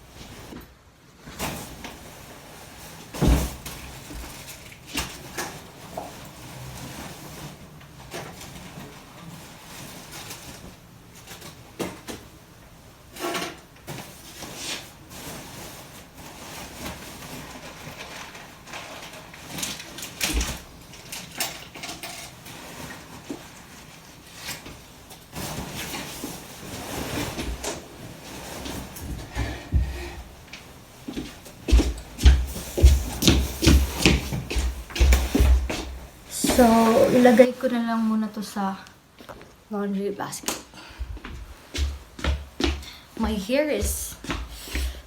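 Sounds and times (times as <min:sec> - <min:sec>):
rustling: 0:13.2 - 0:38.6.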